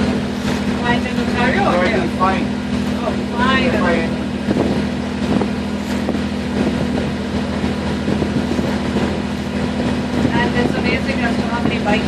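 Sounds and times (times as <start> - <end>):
boat motor humming: 0.0 - 12.0
wind on microphone: 3.9 - 12.0.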